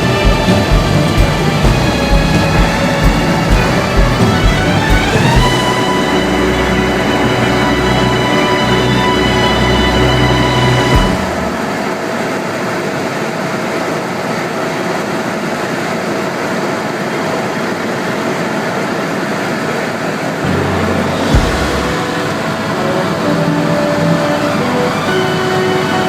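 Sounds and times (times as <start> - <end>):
helicopter cabin drone: 0.0 - 8.5.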